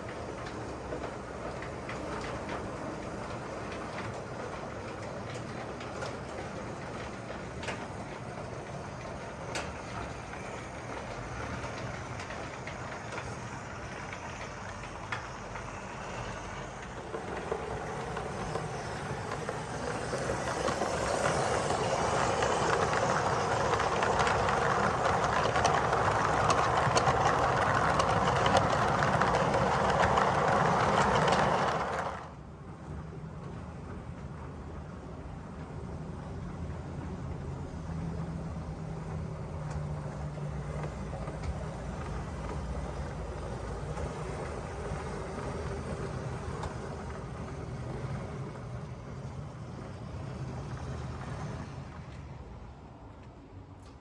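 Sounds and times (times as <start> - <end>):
model train wheels on rail: 0.0 - 54.0.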